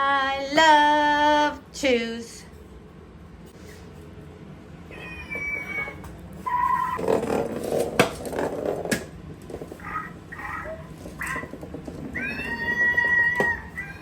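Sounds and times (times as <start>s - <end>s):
parrots whistling: 4.9s - 7.0s, 9.8s - 14.0s
chirpy parrot calls: 9.8s - 11.5s
raspy parrot chatter: 9.8s - 14.0s.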